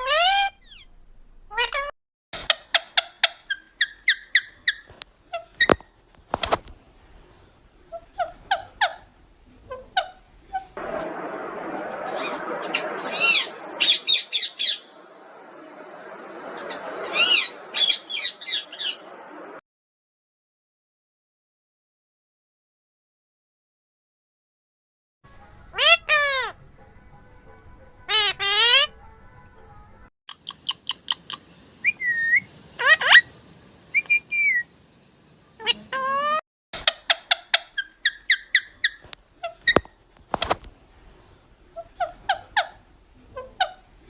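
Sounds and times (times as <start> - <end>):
parrot harsh call: 0.0 - 0.8, 17.0 - 19.0, 25.7 - 26.6, 28.1 - 28.9, 30.6 - 33.3, 35.6 - 39.8
parrot whistling and chirping: 0.0 - 1.9, 2.7 - 5.8, 25.7 - 26.6, 30.4 - 33.3, 33.9 - 34.7, 37.1 - 39.8
parrot calling: 0.0 - 5.8, 7.9 - 9.1, 9.7 - 10.8, 12.1 - 15.0, 16.6 - 19.0, 25.7 - 26.6, 28.1 - 28.9, 30.3 - 33.3, 33.9 - 34.7, 35.6 - 39.8, 41.7 - 43.9.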